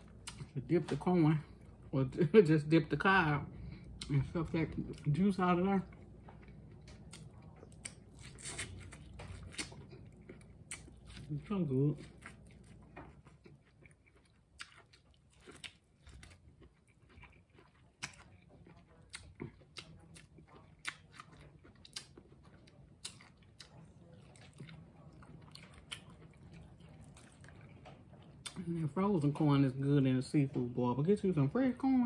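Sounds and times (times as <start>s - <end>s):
biting and chewing corn: 4.6s - 28.6s.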